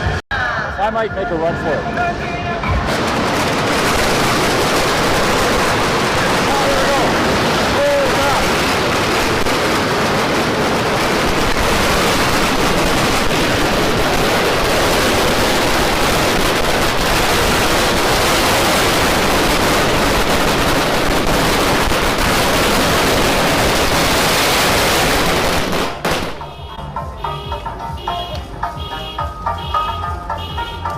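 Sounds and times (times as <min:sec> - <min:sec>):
bottle rockets cracking and whooshing: 0:02.9 - 0:26.4.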